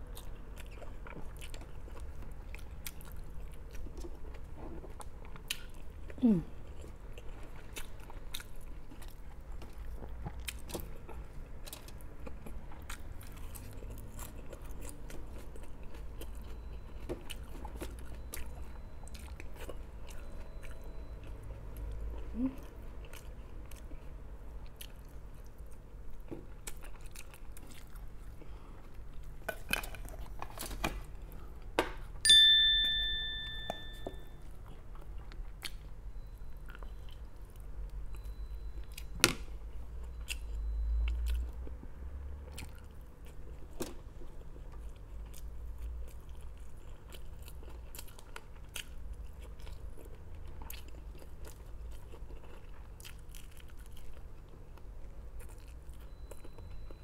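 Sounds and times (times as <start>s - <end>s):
person chewing and crunching food: 0.0s - 32.2s, 33.4s - 57.0s
ringing clink: 32.3s - 34.4s.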